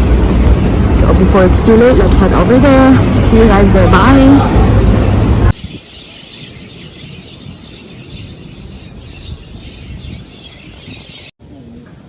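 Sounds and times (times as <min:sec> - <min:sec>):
small birds chirping: 0:05.0 - 0:11.8.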